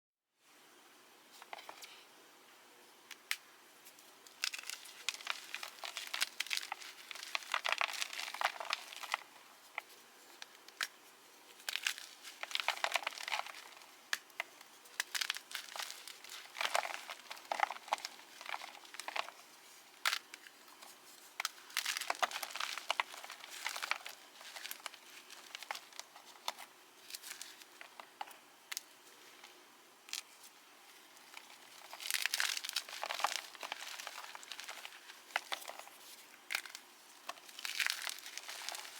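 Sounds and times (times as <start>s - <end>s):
chalk crunching by hand: 4.4s - 28.0s.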